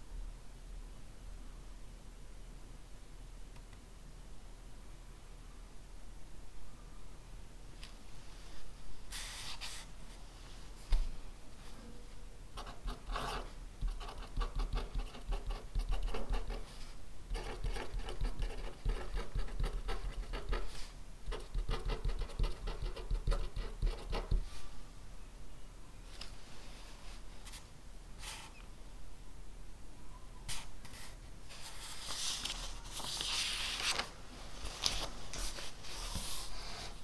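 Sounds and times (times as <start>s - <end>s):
pen scratching on paper: 12.6s - 16.7s, 17.3s - 24.5s.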